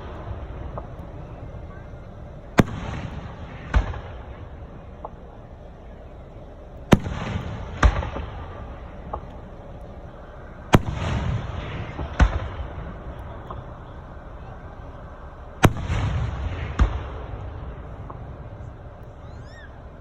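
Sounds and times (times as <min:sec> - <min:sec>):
firework shells bursting: 0:00.0 - 0:20.0
faint firework pops: 0:02.6 - 0:05.4, 0:06.7 - 0:10.0, 0:10.7 - 0:14.0, 0:15.6 - 0:19.2.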